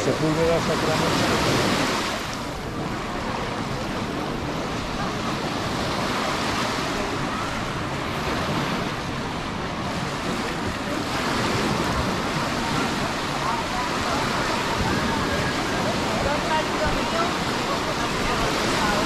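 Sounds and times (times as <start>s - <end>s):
sea surf washing on shore: 0.0s - 19.0s
wind buffeting microphone: 0.0s - 19.0s.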